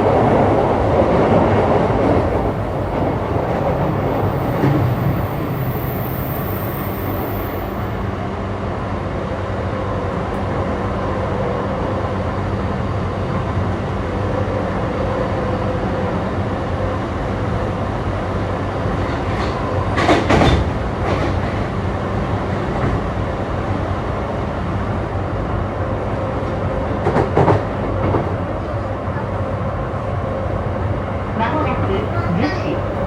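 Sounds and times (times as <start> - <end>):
train motor hum: 0.0 - 6.6, 28.2 - 33.0
train rolling rumble: 0.0 - 33.0.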